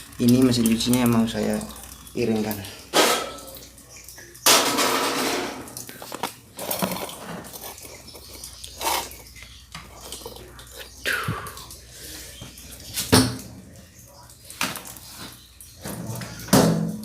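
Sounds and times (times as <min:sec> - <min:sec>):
washing machine clattering and knocking: 0:02.9 - 0:03.6, 0:04.5 - 0:05.8, 0:13.0 - 0:13.7, 0:15.8 - 0:17.0.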